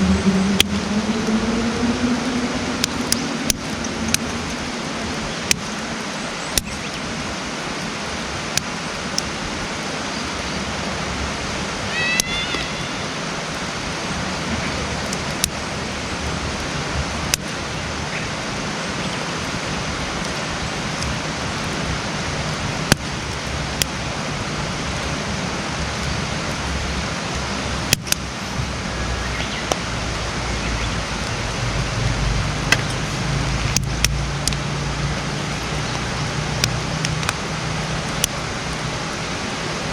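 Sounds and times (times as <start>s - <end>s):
campfire hissing: 2.3s - 39.9s
fire popping and crackling: 2.8s - 7.1s, 16.5s - 17.7s, 19.0s - 26.7s, 27.3s - 28.6s, 32.4s - 37.4s.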